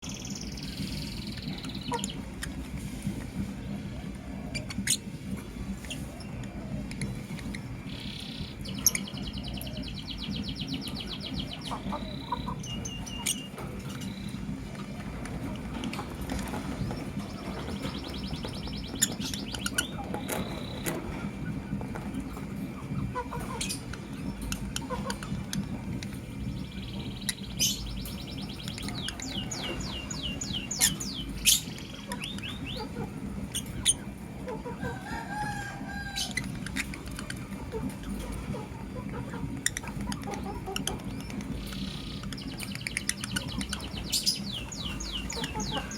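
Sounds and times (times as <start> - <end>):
lovebirds chirping: 0.0 - 2.7, 3.7 - 45.9
low background hum: 0.0 - 45.9.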